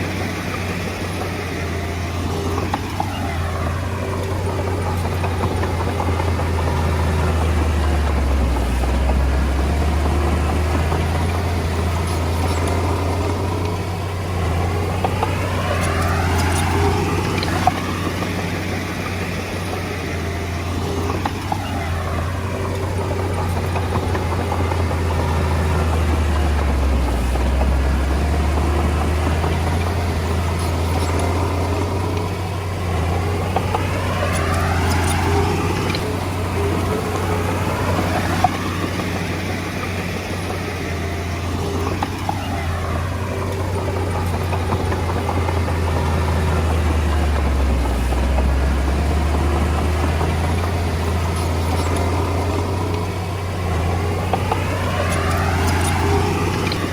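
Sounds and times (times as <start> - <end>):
bulldozer diesel engine droning: 0.0 - 56.9.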